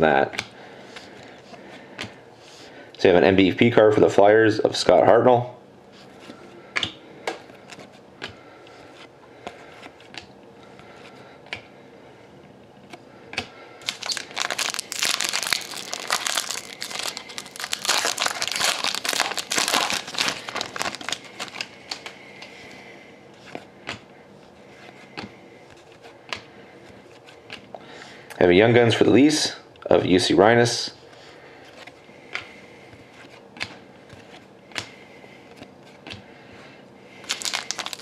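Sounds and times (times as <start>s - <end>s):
wrappers crinkling and tearing: 13.8s - 22.2s, 37.2s - 38.0s.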